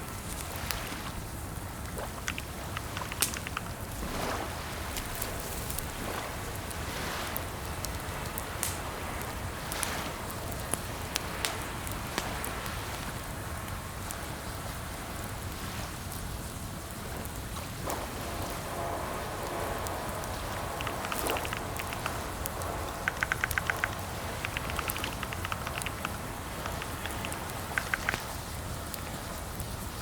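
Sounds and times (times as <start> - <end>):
steady background hiss: 0.0 - 30.0
keyboard typing clicks: 2.2 - 3.7, 20.8 - 22.3, 22.9 - 28.3.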